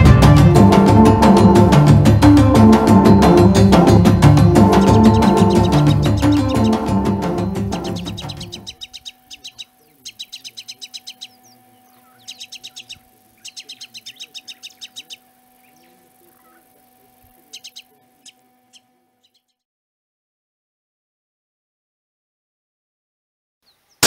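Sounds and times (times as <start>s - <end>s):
music: 0.0s - 8.8s
bird chirping: 4.0s - 19.6s, 23.6s - 24.0s
faint steady hum: 4.1s - 19.6s.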